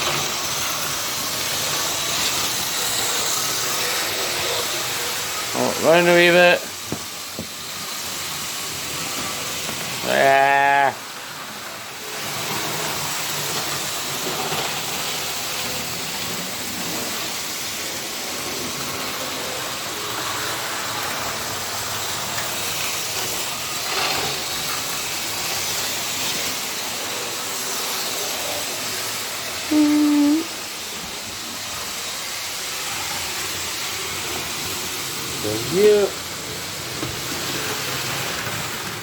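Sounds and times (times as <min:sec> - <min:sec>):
model train motor whirring: 0:00.0 - 0:39.0.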